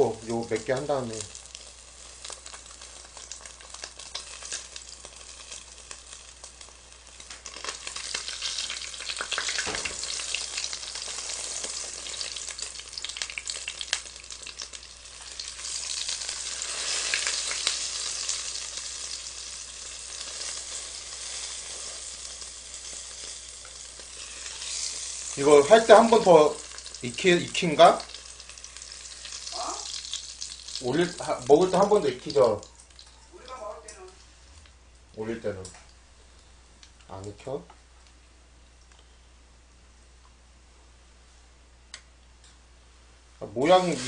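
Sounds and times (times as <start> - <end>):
fish frying in oil: 0.0 - 33.6, 43.6 - 44.0.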